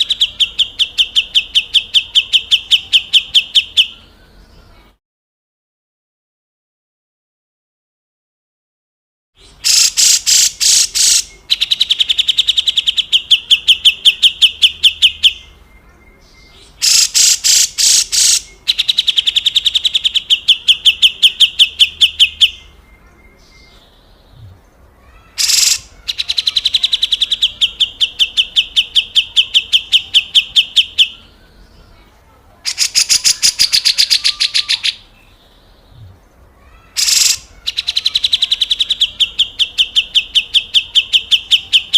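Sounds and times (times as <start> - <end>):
bird rasping scold calls: 9.6 - 13.7, 16.8 - 22.2, 25.1 - 31.0, 32.7 - 35.1, 36.7 - 40.2.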